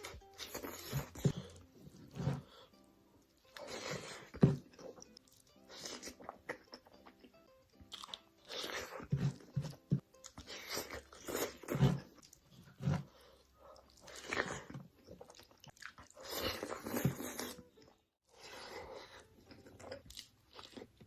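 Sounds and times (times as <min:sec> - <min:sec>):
soft background music: 0:00.0 - 0:21.0
crunchy biting and chewing: 0:07.8 - 0:13.2, 0:13.8 - 0:17.6.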